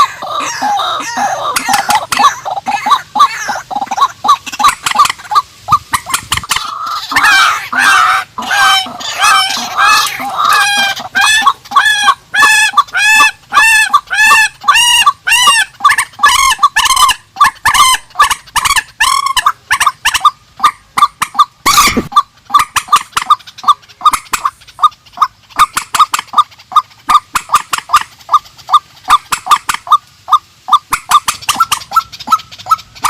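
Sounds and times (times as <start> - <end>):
bird's nasal calls: 0.0 - 33.0.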